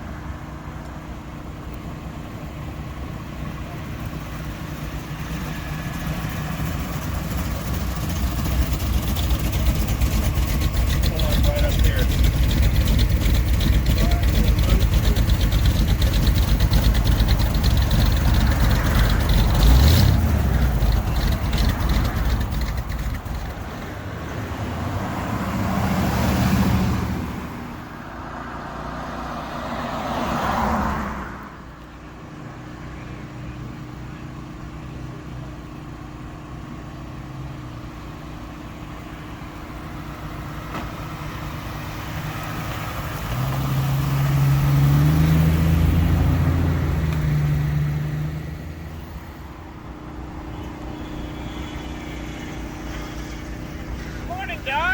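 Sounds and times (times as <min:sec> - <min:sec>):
engine idling and revving: 0:00.0 - 0:54.9
vehicles passing: 0:00.0 - 0:54.9
loud engine running: 0:01.1 - 0:25.0, 0:48.8 - 0:54.9.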